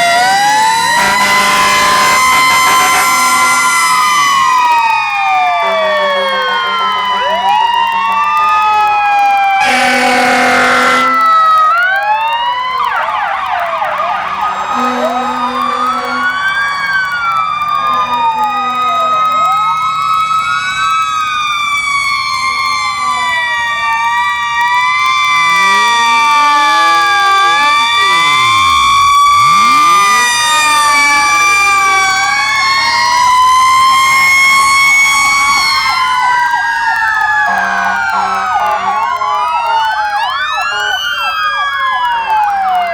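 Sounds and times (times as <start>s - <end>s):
low horn blasts: 0.0s - 3.9s, 9.6s - 11.3s, 14.2s - 16.8s, 37.5s - 39.5s
fire truck sirens wailing: 0.0s - 42.9s.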